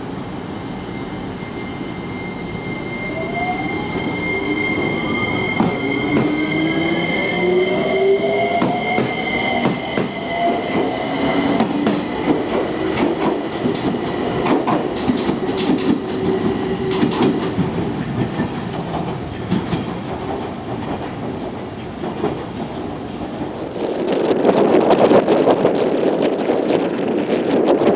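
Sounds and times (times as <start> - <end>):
train running rumble: 3.1 - 27.9.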